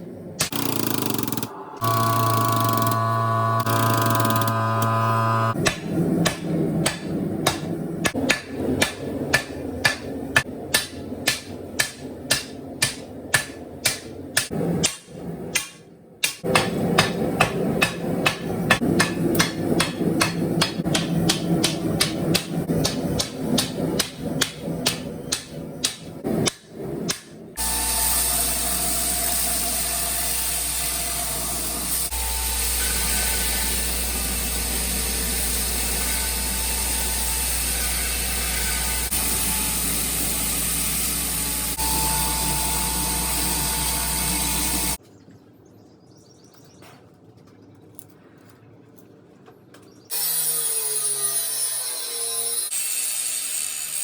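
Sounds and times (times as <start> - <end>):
low hum: 0.0 - 28.0
hammer striking hot steel: 5.5 - 27.4.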